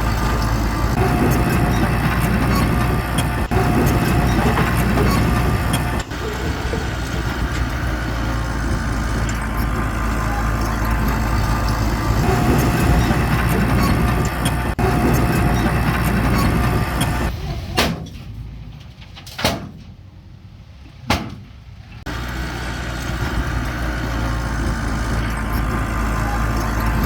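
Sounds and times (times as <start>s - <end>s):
bulldozer diesel engine running: 0.0s - 19.2s, 21.6s - 27.0s
sharp knocks: 21.1s - 21.4s.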